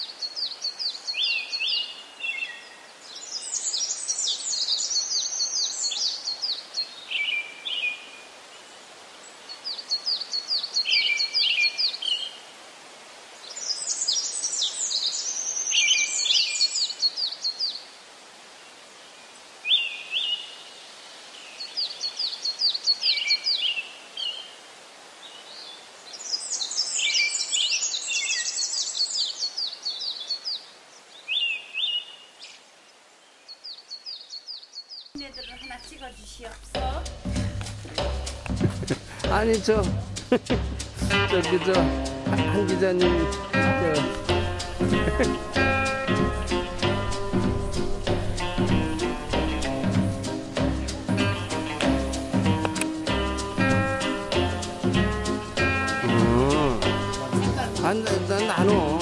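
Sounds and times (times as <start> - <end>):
songbird singing: 0.0 - 12.5, 13.3 - 24.6, 25.2 - 59.0
steady hiss: 35.2 - 59.0.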